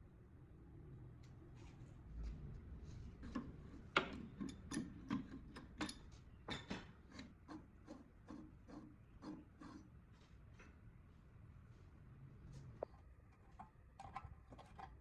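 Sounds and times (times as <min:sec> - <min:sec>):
tools clicking and knocking: 0:03.3 - 0:07.3.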